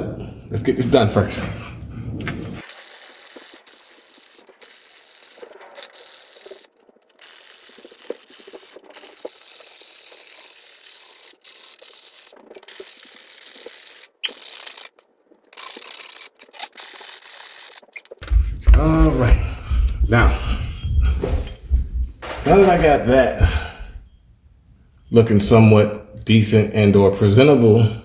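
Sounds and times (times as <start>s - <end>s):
sandpaper sanding plastic: 2.6s - 14.9s, 15.6s - 18.3s.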